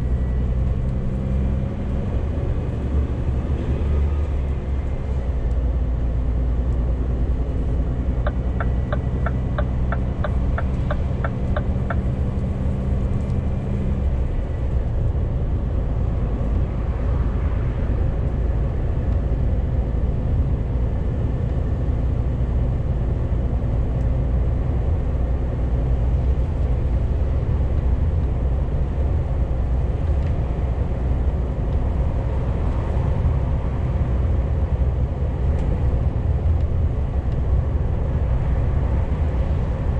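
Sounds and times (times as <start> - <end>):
road noise: 0.0 - 39.9
truck engine running: 7.3 - 14.9
even ticks: 8.2 - 12.1.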